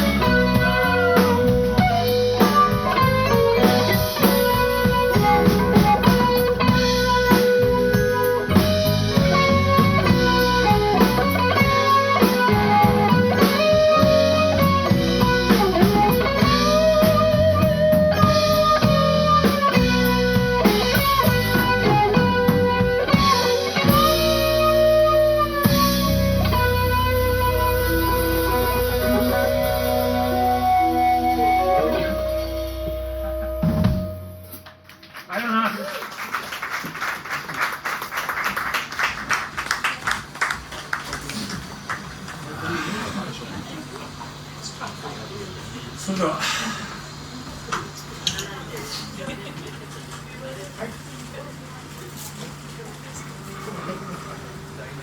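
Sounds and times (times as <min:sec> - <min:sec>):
electric guitar lead: 0:00.0 - 0:35.0
blues-rock band playing: 0:00.0 - 0:35.1.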